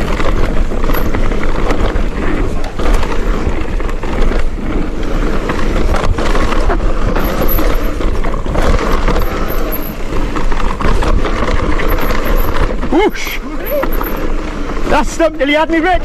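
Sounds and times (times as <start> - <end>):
bike knocks and rattles: 0.0 - 15.9
bike rushing down trail: 0.0 - 16.0.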